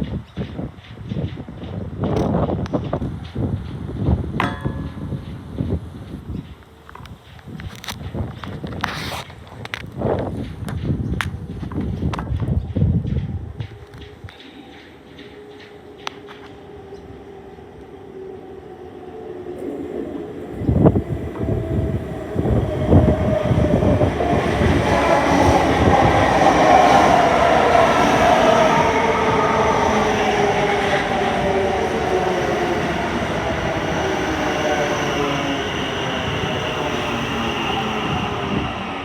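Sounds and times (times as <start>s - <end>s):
train whine: 9.7s - 39.0s.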